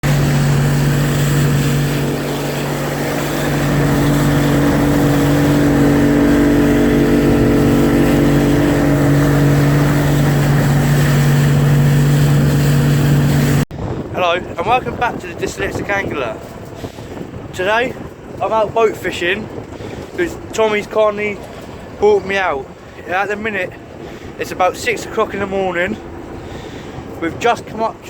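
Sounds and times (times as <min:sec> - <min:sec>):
rushing noise: 0:00.0 - 0:14.1
motorboat engine running: 0:00.0 - 0:28.0.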